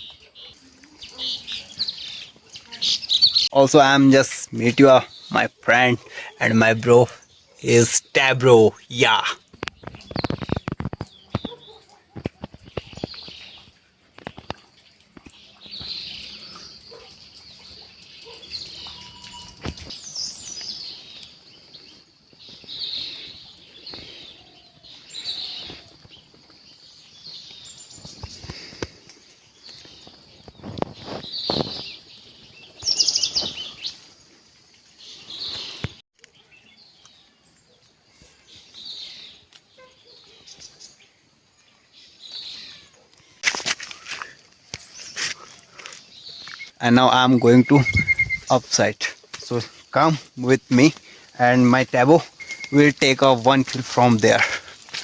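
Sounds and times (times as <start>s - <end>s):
birds chirping: 0.0s - 55.0s
bird trill: 15.3s - 21.9s, 32.6s - 34.0s, 46.0s - 54.5s.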